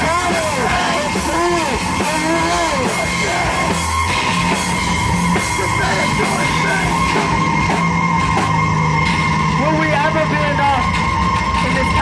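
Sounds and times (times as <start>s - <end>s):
person yelling vocals: 0.0s - 3.8s
distorted heavy rock music: 0.0s - 12.0s
steady high whine: 0.0s - 12.0s.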